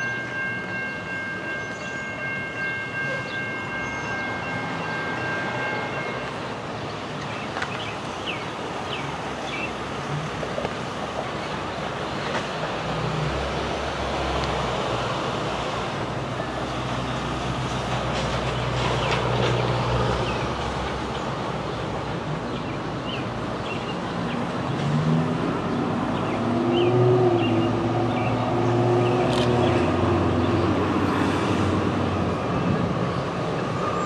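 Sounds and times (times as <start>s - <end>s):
train rumbling: 0.0s - 34.0s.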